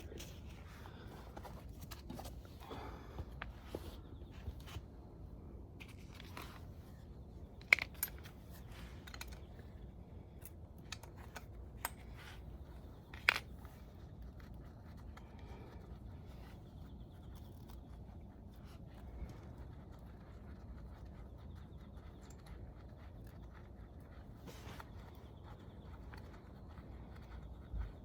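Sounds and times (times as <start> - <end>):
clicks and clinks of tools: 7.6 - 8.4, 9.0 - 9.4.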